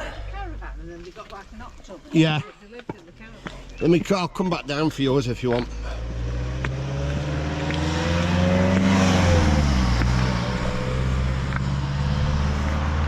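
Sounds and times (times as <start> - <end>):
steady low rumble: 0.0 - 1.7
car passing by: 5.8 - 13.0.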